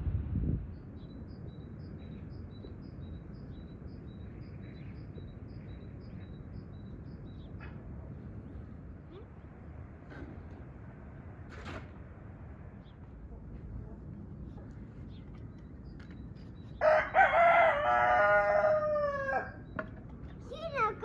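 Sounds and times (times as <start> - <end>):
low outdoor background noise: 0.0 - 21.0.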